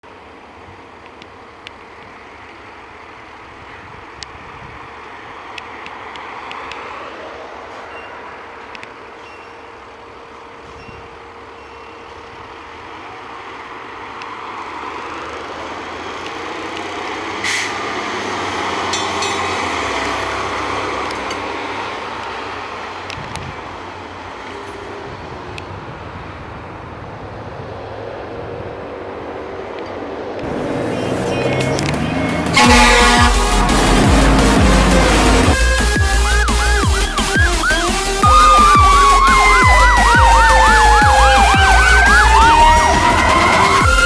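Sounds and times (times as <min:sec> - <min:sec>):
warning bell ringing: 0:18.9 - 0:19.8
fire engine running: 0:30.4 - 0:44.0.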